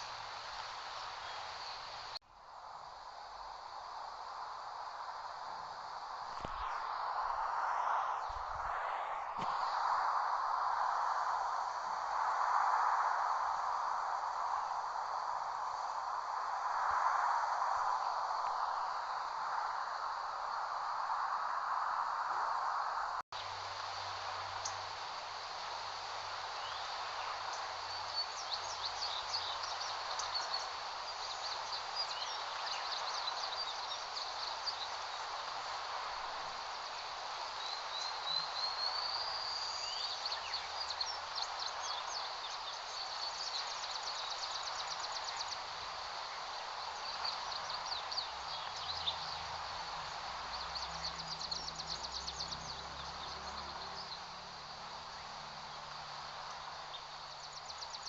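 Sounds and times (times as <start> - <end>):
small birds chirping: 0.0 - 2.2, 23.4 - 58.0.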